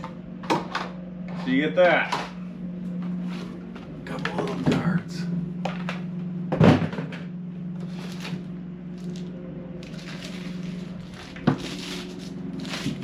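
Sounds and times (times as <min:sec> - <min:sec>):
low hum: 0:00.0 - 0:13.0
packaging rustling: 0:07.8 - 0:13.0
parts being handled: 0:07.8 - 0:13.0.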